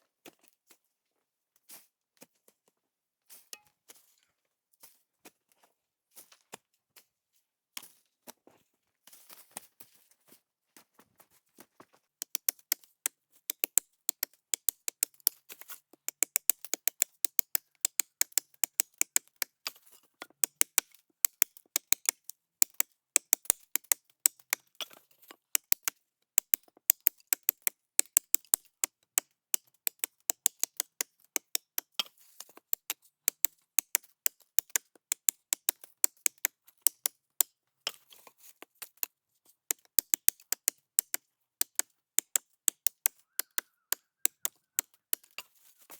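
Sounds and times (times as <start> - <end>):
wood being chopped: 29.6 - 37.1, 39.7 - 45.5.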